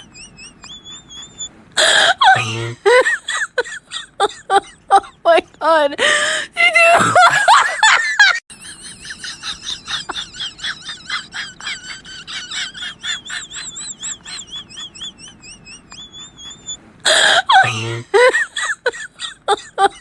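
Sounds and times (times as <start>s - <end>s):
high wavering chirps: 0.0s - 1.5s, 12.5s - 16.8s.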